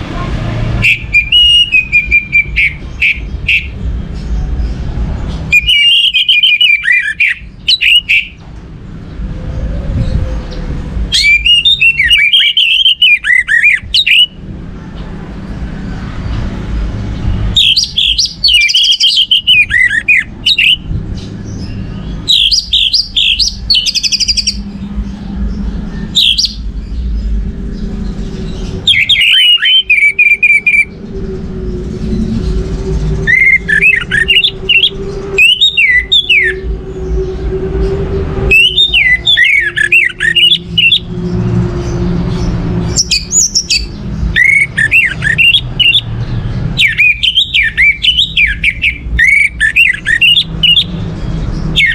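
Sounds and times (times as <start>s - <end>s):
thrush singing high warbling phrases: 0.0s - 4.2s, 5.0s - 8.4s, 10.8s - 14.6s, 16.5s - 26.9s, 27.5s - 51.9s
low background rumble: 13.5s - 51.9s.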